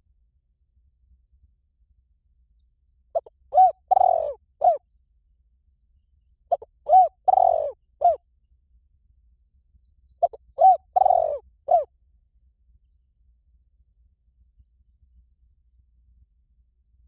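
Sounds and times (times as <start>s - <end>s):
dove cooing: 3.2s - 4.8s, 6.5s - 8.2s, 10.2s - 11.9s.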